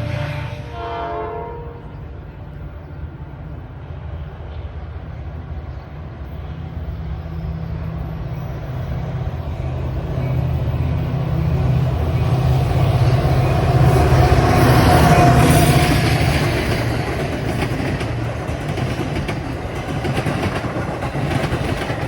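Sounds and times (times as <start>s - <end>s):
train horn: 0.0s - 3.8s, 13.1s - 16.2s
low rumble of a train: 0.0s - 22.0s.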